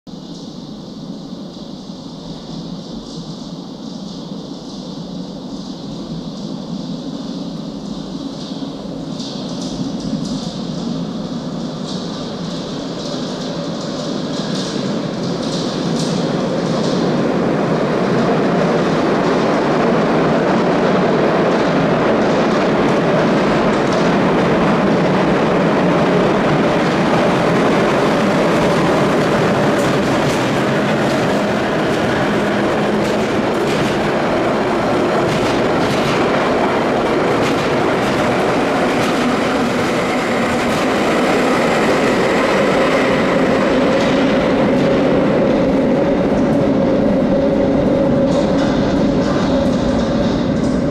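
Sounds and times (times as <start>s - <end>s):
locomotive wheels and motors rumbling: 11.9s - 50.9s
wheels clicking over rail joints: 26.2s - 45.0s.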